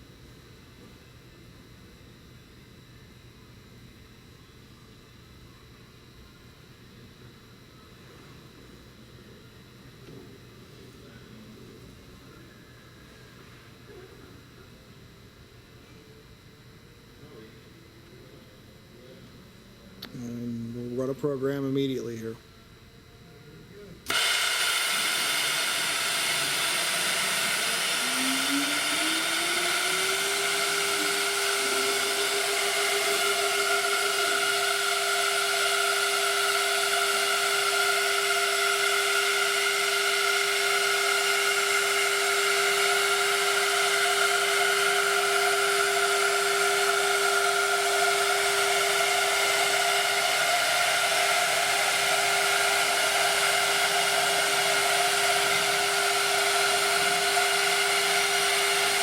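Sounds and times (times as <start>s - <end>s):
cnc router running: 0.0s - 59.0s
machine whine rising in pitch: 24.1s - 59.0s.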